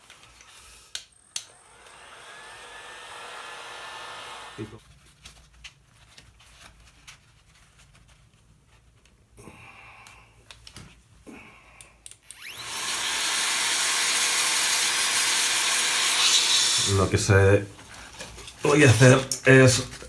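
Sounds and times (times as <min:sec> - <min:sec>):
electric power tool whining: 0:01.2 - 0:04.8, 0:12.2 - 0:17.1.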